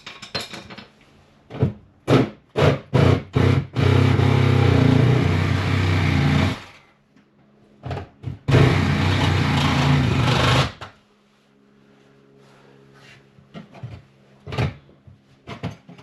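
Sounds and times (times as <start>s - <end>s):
power tool motor running: 8.5s - 10.8s.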